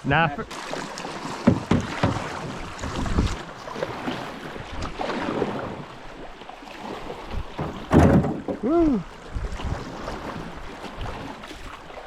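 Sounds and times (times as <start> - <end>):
water rushing around canoe hull: 0.0 - 12.0
knocks against canoe: 1.2 - 3.4, 7.3 - 9.0.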